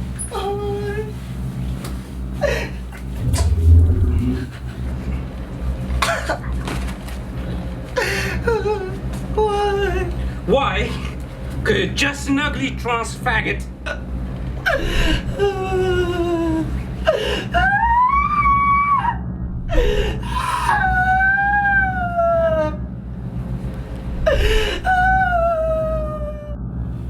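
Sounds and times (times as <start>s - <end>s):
steady low hum: 0.0s - 27.0s
person wailing in distress: 3.2s - 4.6s, 24.2s - 26.6s.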